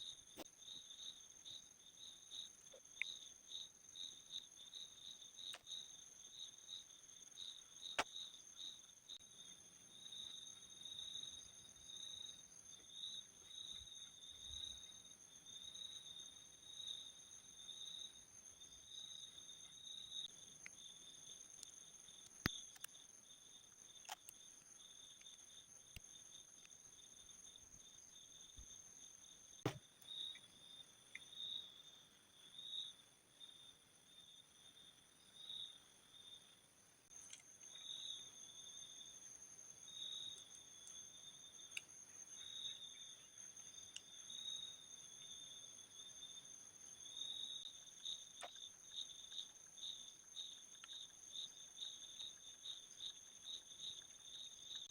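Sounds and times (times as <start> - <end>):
insects chirring: 0.0 - 54.9.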